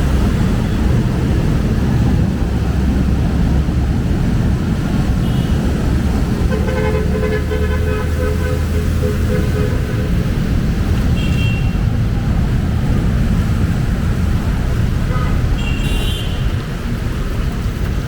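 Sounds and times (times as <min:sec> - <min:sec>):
traffic engines rumbling: 0:00.0 - 0:18.0
vehicle horn: 0:05.2 - 0:05.7, 0:06.4 - 0:11.9, 0:15.1 - 0:16.7.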